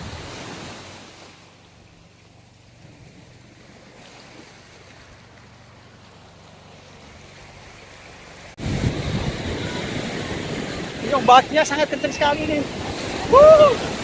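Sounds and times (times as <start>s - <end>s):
ocean surf breaking: 0.0s - 14.0s
wind rumbling on microphone: 8.6s - 14.0s.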